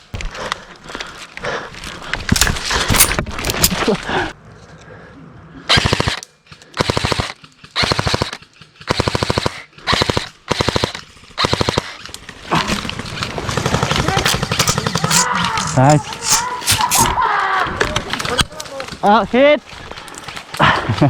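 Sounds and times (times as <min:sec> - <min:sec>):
dense rattle: 0:02.3 - 0:03.8
airsoft gun firing full auto: 0:06.8 - 0:12.1.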